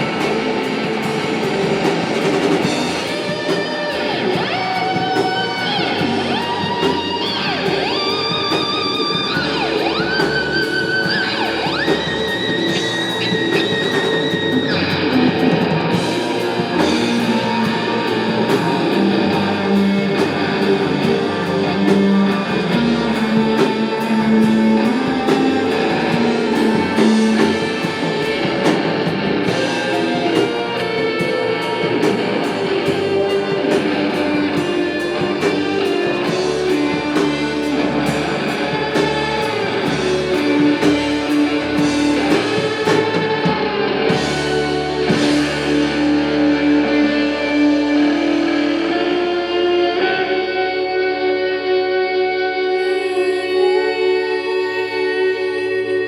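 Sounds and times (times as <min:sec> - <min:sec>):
steady drum beat: 0:00.0 - 0:49.2
bass guitar: 0:00.0 - 0:56.0
strummed electric guitars: 0:00.0 - 0:56.0.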